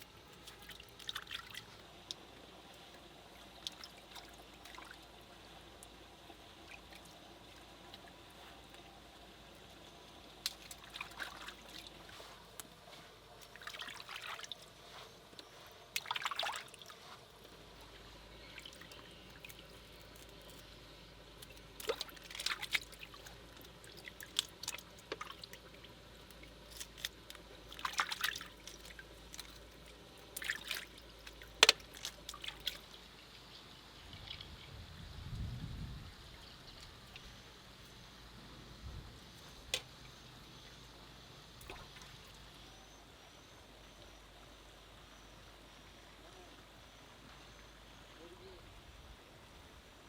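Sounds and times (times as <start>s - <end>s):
water splashing and dripping: 0.0s - 2.2s, 3.3s - 5.1s, 10.3s - 12.7s, 13.4s - 14.8s, 15.9s - 17.6s, 18.5s - 20.6s, 21.4s - 33.0s, 41.6s - 42.4s.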